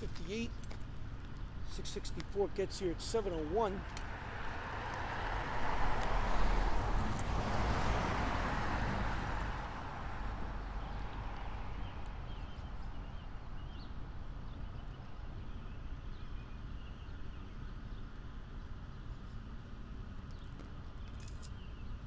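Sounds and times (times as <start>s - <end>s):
steady low rumble: 0.0s - 14.4s
small birds chirping faintly: 10.2s - 22.0s.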